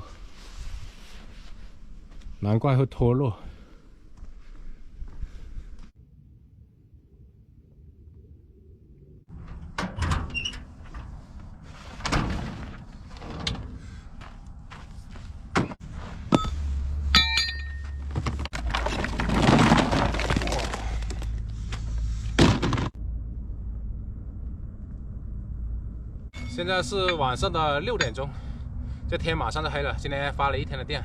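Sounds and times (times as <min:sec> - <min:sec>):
low steady hum: 0:03.3 - 0:31.0
ringing metallic clang: 0:17.2 - 0:18.0, 0:26.4 - 0:28.2
knocks and thuds: 0:22.4 - 0:23.0.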